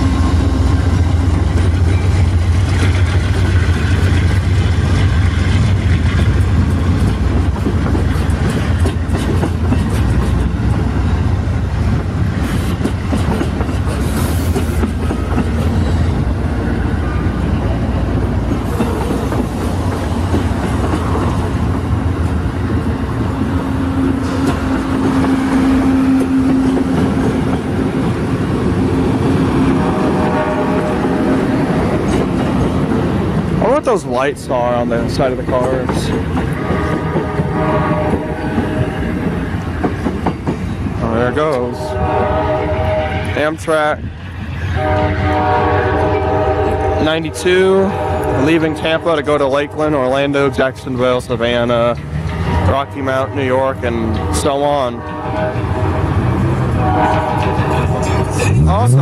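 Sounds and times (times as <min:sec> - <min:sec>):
train rumbling past: 0:00.0 - 0:59.0
wheels clicking over rail joints: 0:01.4 - 0:16.6.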